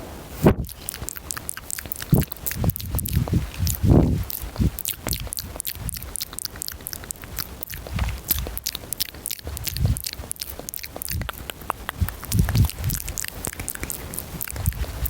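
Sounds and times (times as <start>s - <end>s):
wet mouth clicks and smacks: 0.6s - 15.0s
breath puffs on microphone: 2.0s - 6.0s, 11.1s - 13.1s.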